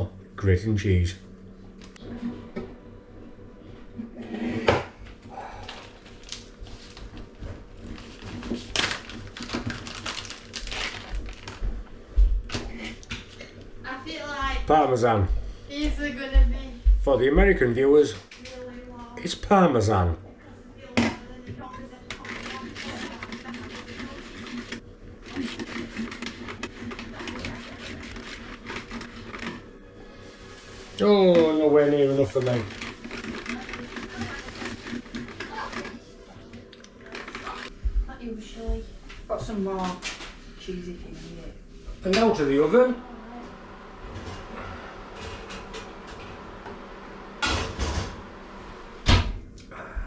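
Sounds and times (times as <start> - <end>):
cheese rasping on metal grater: 22.1 - 29.6, 32.0 - 36.0.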